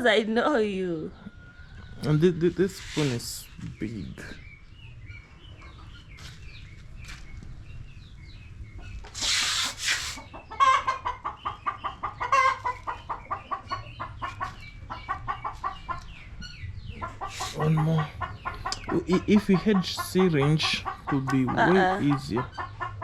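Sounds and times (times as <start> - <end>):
hen clucking rapidly: 1.9 - 4.6, 8.7 - 23.0
rustling: 9.1 - 10.2.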